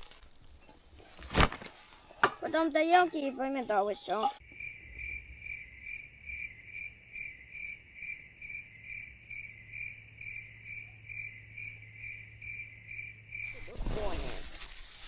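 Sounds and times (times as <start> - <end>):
cricket-like chirping: 4.2 - 13.8.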